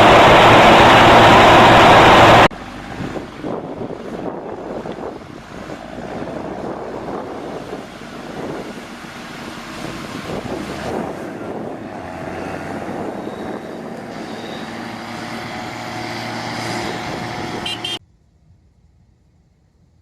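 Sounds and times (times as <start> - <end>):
tractor engine running under load: 0.0 - 18.0
wind noise on microphone: 0.0 - 20.0.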